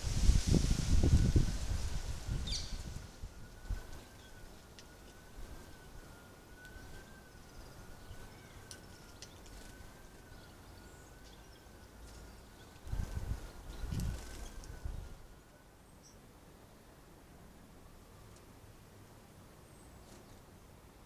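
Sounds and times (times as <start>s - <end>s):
steady high whine: 0.0s - 19.4s
faint bird chirps: 2.3s - 17.0s.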